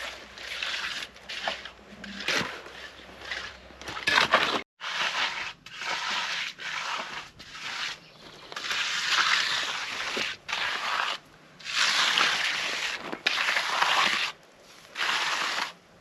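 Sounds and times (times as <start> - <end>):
hand tools scraping wet concrete: 0.0 - 15.8.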